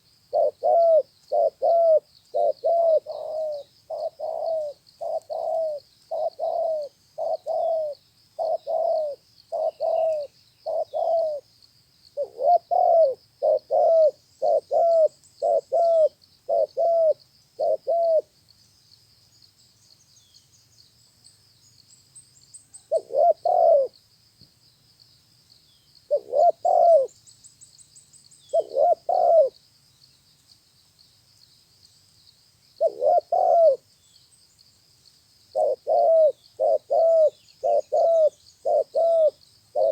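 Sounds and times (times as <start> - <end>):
dove cooing: 0.3 - 11.4, 12.2 - 18.3, 22.8 - 24.0, 26.1 - 27.2, 28.5 - 29.6, 32.8 - 33.8, 35.6 - 39.9.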